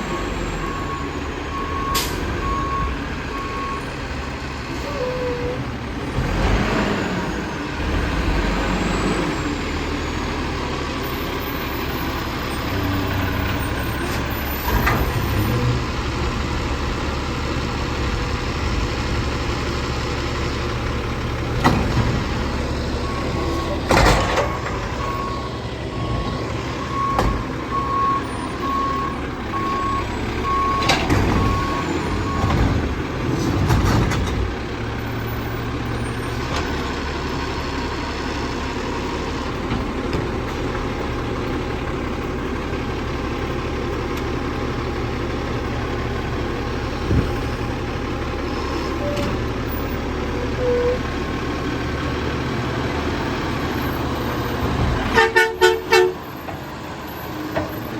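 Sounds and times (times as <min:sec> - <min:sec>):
reversing alarm beeping: 0:00.0 - 0:04.0, 0:22.9 - 0:32.6
garbage truck engine running: 0:00.0 - 0:57.9.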